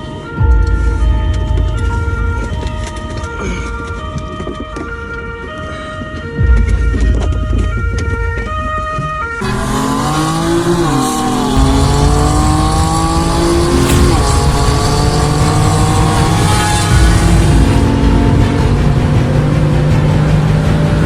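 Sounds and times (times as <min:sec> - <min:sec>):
car engine revving: 0:00.6 - 0:03.1, 0:09.4 - 0:21.0.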